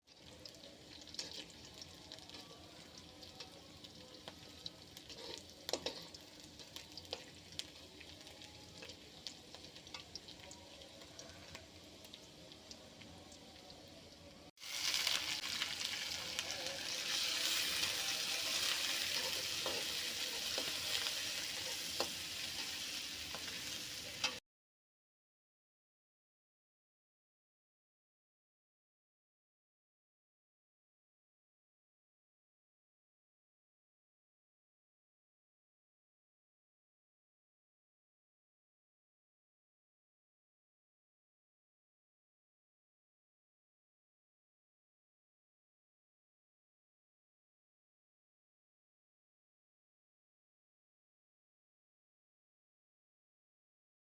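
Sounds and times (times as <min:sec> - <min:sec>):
food frying in oil: 0:00.0 - 0:24.4.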